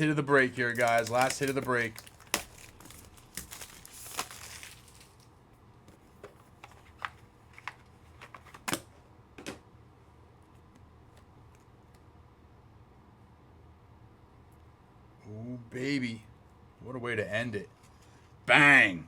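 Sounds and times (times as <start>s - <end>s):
card packaging rustling: 0.0s - 5.4s.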